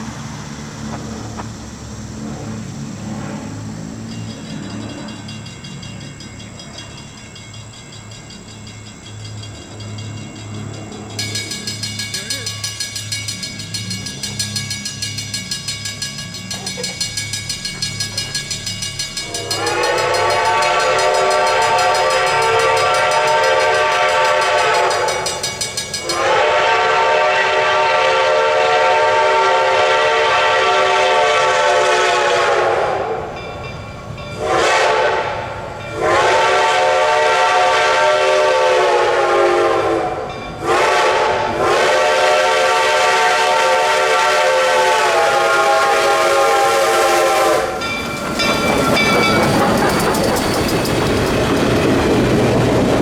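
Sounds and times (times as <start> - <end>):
steam whistle blasts: 19.2 - 25.4, 26.0 - 33.3, 34.4 - 47.9.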